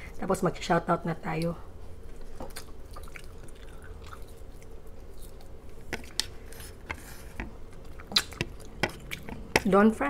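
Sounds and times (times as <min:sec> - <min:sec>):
close chewing of food: 0:02.2 - 0:09.7
wet mouth clicks and smacks: 0:08.0 - 0:09.4.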